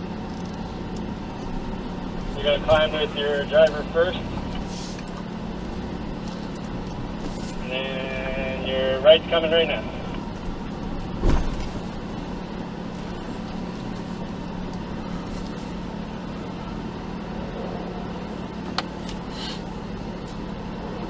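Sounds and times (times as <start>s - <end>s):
engine running low: 0.0s - 21.0s
loud thump: 11.2s - 11.8s.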